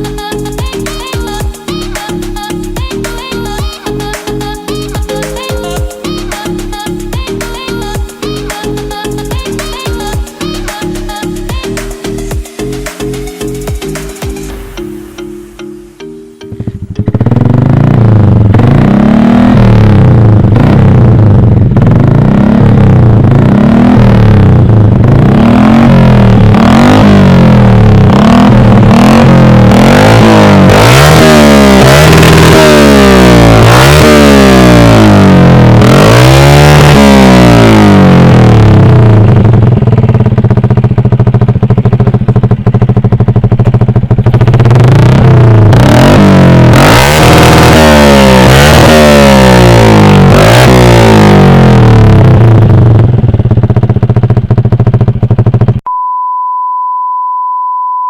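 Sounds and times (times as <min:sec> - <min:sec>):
motorcycle engine revving: 0:16.5 - 0:55.8.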